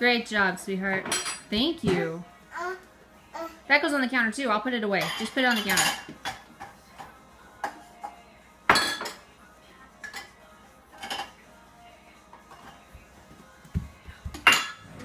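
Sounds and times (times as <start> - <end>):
dishes and cutlery clattering: 0.9 - 2.1, 5.0 - 9.3, 10.0 - 11.4, 12.4 - 12.9, 14.3 - 15.0.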